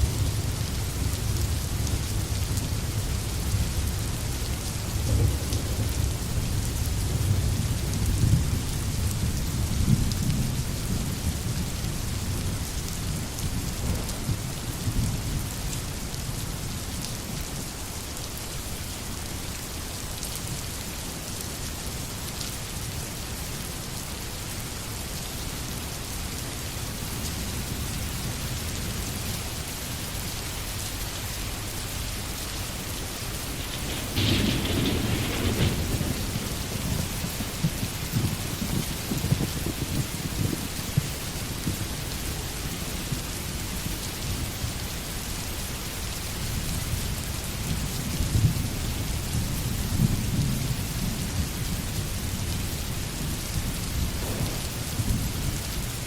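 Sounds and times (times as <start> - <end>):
rolling thunder rumble: 0.0 - 15.8, 31.4 - 43.9, 46.9 - 56.0
heavy rain hissing: 0.0 - 56.0.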